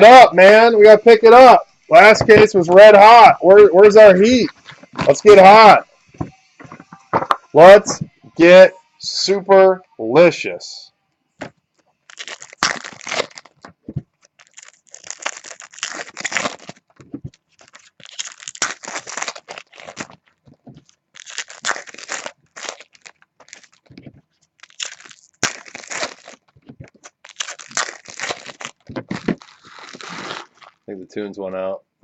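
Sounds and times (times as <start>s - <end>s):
wrappers tearing and crinkling: 12.0s - 30.9s.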